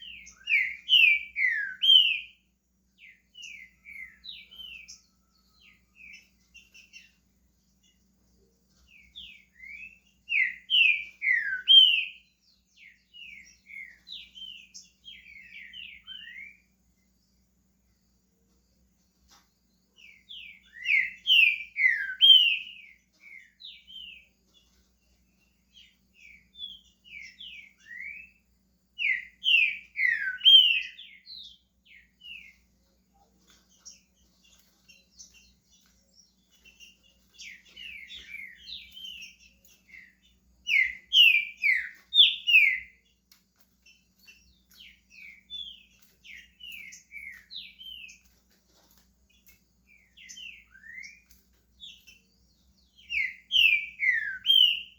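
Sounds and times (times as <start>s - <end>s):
bird singing sliding whistles: 37.4s - 43.0s, 53.0s - 54.9s.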